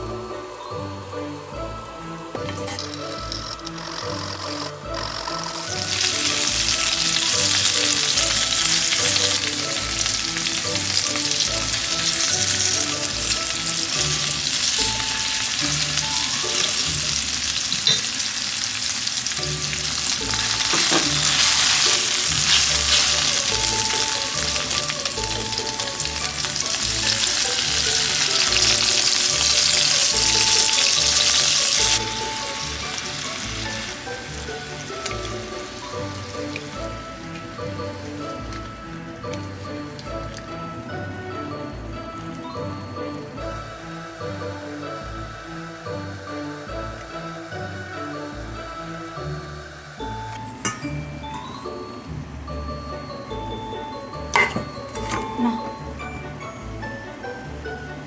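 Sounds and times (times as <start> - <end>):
food sizzling in a pan: 0.0 - 57.6
stirring in a pan: 2.2 - 42.4.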